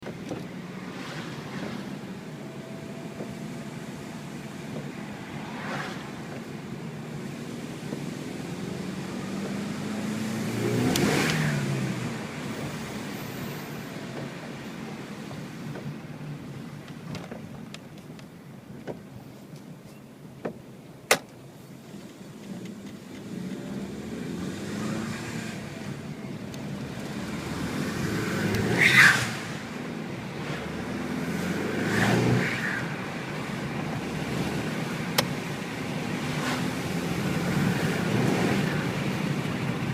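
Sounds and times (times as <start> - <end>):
car engine accelerating: 0.7 - 14.6, 22.4 - 39.9.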